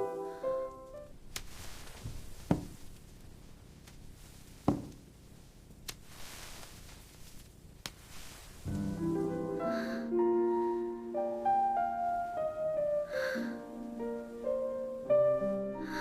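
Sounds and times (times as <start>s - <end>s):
soft piano music: 0.0s - 1.2s, 8.7s - 16.0s
faint hiss: 0.0s - 16.0s
dull thumps: 1.9s - 3.0s, 4.6s - 5.1s.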